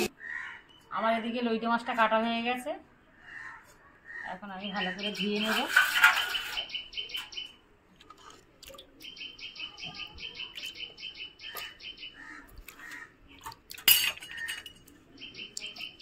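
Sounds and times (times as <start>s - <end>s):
bird chirping in rapid runs: 4.5s - 7.6s, 9.0s - 13.5s, 14.2s - 16.0s.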